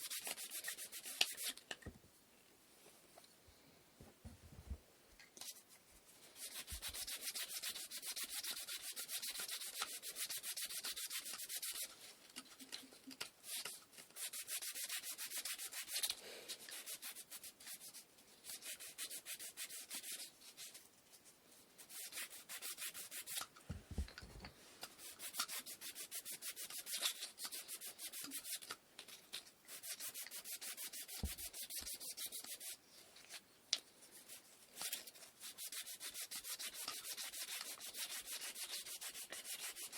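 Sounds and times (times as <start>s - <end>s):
hand sanding wood: 0.0s - 1.5s, 6.4s - 12.0s, 14.2s - 20.8s, 21.8s - 23.4s, 24.9s - 28.6s, 29.7s - 32.8s, 34.1s - 39.9s.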